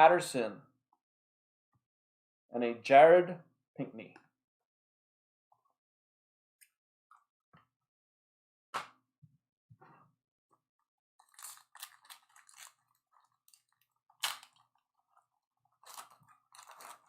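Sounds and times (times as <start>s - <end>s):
trading cards rustling and clicking: 15.8s - 17.0s.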